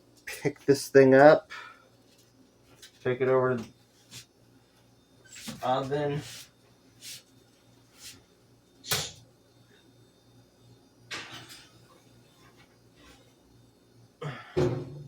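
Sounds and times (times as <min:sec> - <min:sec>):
knocks on oven: 0:14.6 - 0:15.0.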